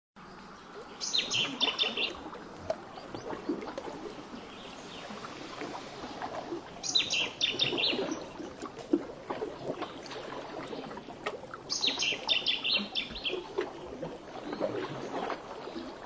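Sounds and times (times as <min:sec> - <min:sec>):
songbird singing: 0:00.6 - 0:05.2, 0:06.8 - 0:08.5, 0:11.7 - 0:13.5.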